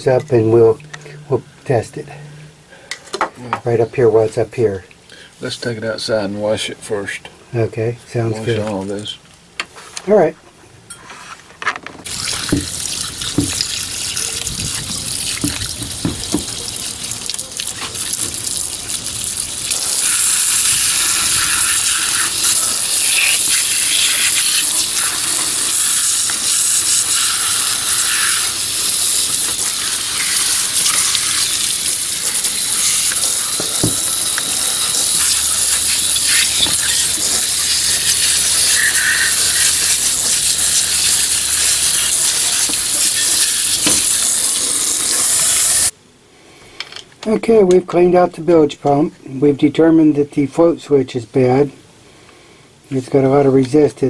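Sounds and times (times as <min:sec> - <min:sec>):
running water: 0:12.1 - 0:45.9.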